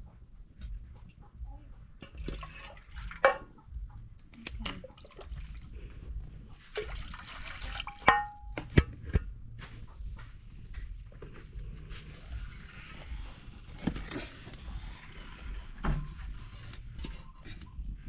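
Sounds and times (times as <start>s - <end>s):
water pouring and splashing: 2.1s - 3.4s, 6.5s - 8.2s.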